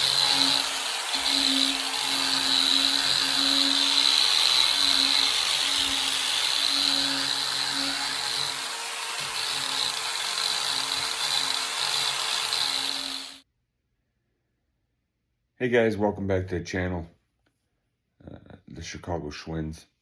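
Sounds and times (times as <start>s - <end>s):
power drill sanding metal: 0.0s - 13.4s.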